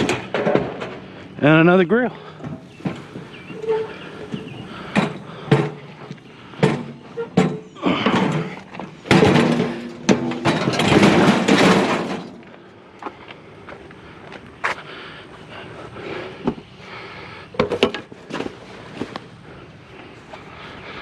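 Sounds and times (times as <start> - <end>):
metal rattling and scraping: 0.0 - 12.7
scrap metal clanking: 2.2 - 12.6.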